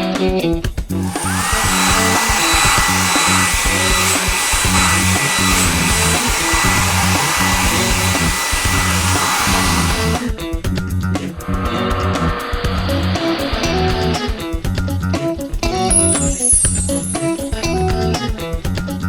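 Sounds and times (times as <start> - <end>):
background music: 0.0 - 19.0
rushing hiss of spray: 1.0 - 10.3
motor whine: 1.0 - 10.4, 11.3 - 14.6.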